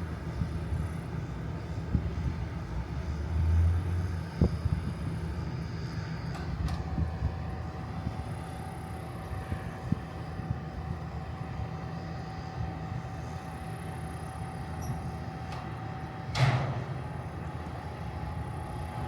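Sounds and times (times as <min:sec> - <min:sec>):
constant whine: 0:00.0 - 0:19.0
loud clank: 0:16.3 - 0:17.0.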